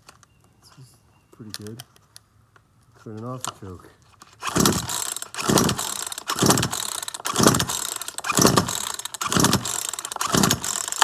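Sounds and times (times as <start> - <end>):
chainsaw pull-starter cranking engine: 4.2 - 11.0.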